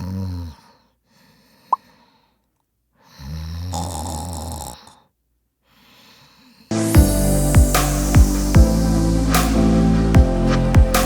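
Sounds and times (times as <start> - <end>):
person snoring: 0.0 - 0.8, 3.1 - 5.1.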